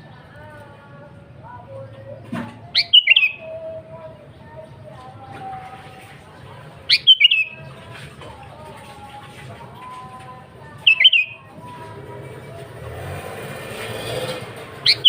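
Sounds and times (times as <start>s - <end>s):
bulbul calling: 2.6s - 4.0s, 6.9s - 7.8s, 10.8s - 11.6s
faint bird chirps: 2.7s - 3.7s, 6.9s - 7.6s, 10.8s - 11.4s.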